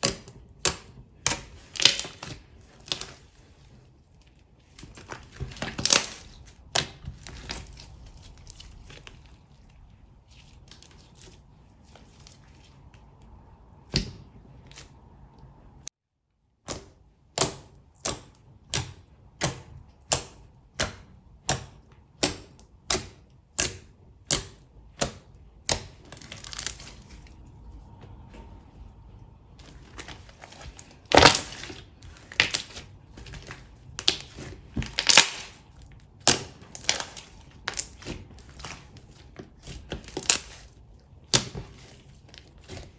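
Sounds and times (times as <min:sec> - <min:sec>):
slime being handled: 0:00.5 - 0:15.7, 0:25.8 - 0:42.9.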